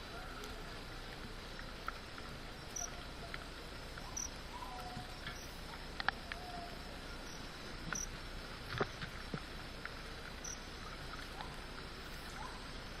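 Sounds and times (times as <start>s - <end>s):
insect chirping: 0.0s - 13.0s
steady hiss: 0.0s - 13.0s
faint clicks: 0.4s - 6.8s.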